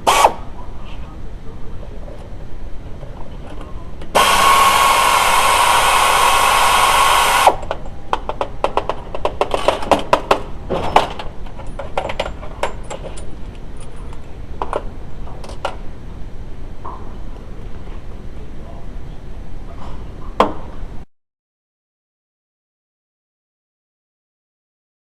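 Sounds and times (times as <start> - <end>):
power tool whirring: 0.0 - 0.4, 4.2 - 7.7.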